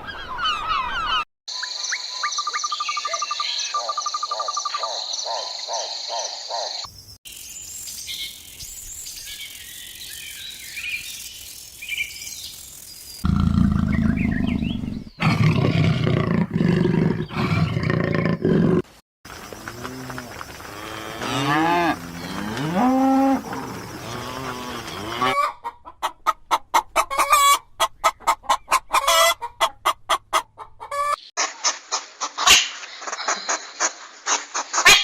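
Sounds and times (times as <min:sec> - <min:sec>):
bird chirps: 0:00.0 - 0:15.2.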